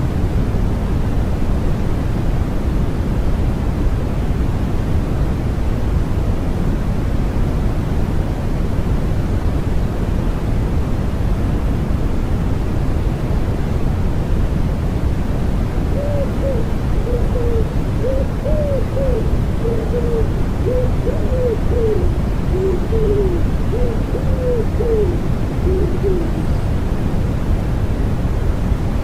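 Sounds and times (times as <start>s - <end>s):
white noise: 0.0s - 29.0s
wood pigeon cooing: 15.9s - 26.6s.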